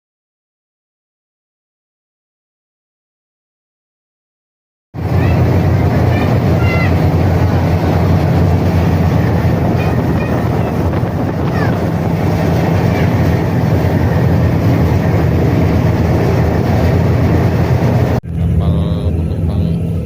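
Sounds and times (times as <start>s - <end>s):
ferry diesel engines droning: 5.0s - 20.0s
rushing propeller wake: 5.0s - 20.0s.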